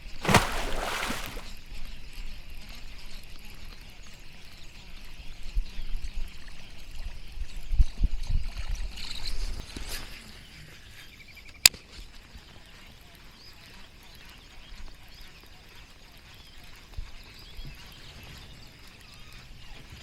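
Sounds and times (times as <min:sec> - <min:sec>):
water splashing and trickling: 0:00.0 - 0:01.5.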